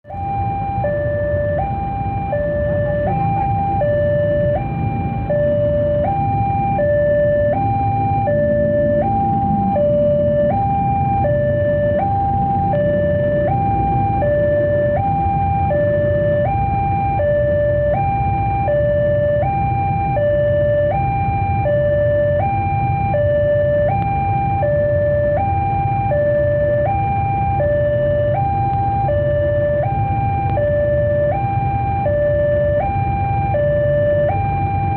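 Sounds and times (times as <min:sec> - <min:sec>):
railway warning alarm two-tone: 0:00.1 - 0:26.8.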